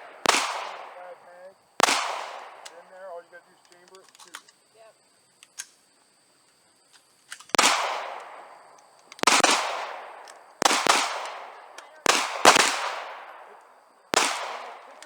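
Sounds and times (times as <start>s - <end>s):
pistol shots echoing: 0.0s - 3.2s, 7.5s - 15.0s
light clicks: 3.6s - 4.6s.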